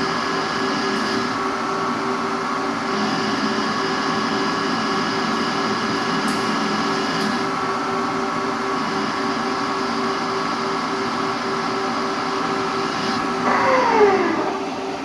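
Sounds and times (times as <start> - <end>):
machine tool motor whine: 12.9 - 15.0.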